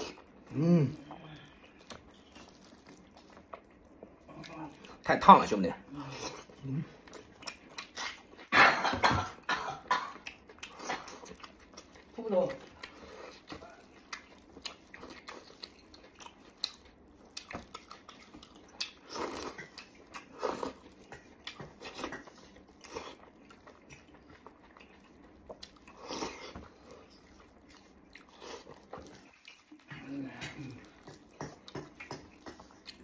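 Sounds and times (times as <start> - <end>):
man chewing and biting: 0.0 - 5.1, 6.0 - 8.5, 10.1 - 33.0.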